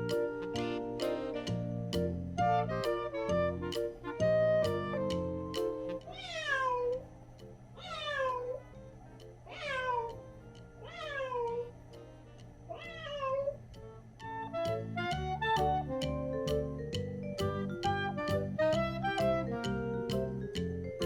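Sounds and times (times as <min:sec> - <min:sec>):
cat meowing: 0:06.1 - 0:07.0, 0:07.8 - 0:08.7, 0:09.5 - 0:10.2, 0:10.8 - 0:11.7, 0:12.7 - 0:13.6.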